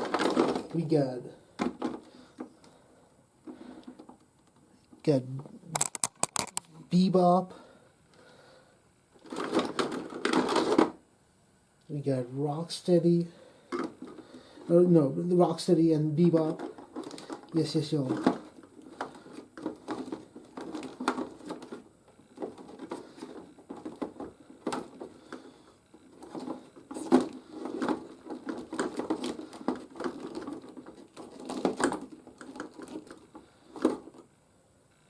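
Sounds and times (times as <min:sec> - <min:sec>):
handling rustling: 0:00.0 - 0:02.8, 0:03.4 - 0:06.7, 0:09.2 - 0:11.0, 0:13.1 - 0:34.5
plastic clicks and knocks: 0:05.7 - 0:06.7.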